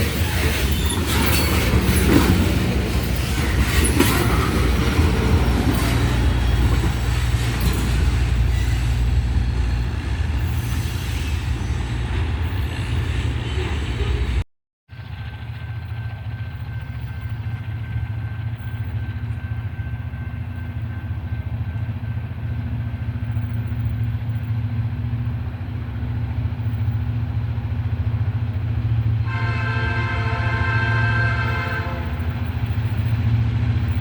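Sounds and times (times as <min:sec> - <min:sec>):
diesel locomotive engine rumble: 0:00.0 - 0:34.0
locomotive air horn: 0:29.2 - 0:32.5.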